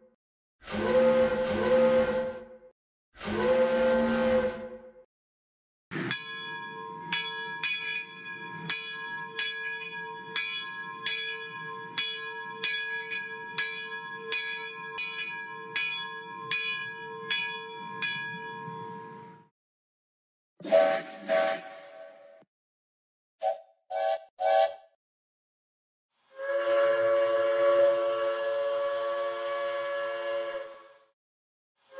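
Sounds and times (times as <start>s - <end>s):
locomotive bell ringing: 5.9s - 19.3s.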